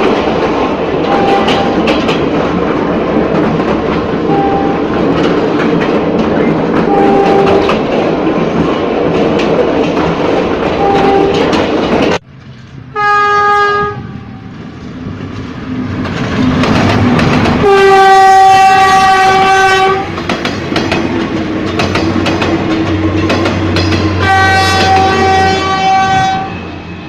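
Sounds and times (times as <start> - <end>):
wheels clicking over rail joints: 0.0 - 12.8, 14.8 - 25.4
train running noise: 0.0 - 27.0
train horn blasts: 1.1 - 1.9, 4.3 - 4.9, 6.9 - 7.7, 10.8 - 11.5, 12.9 - 14.5, 17.6 - 20.2, 24.0 - 26.9.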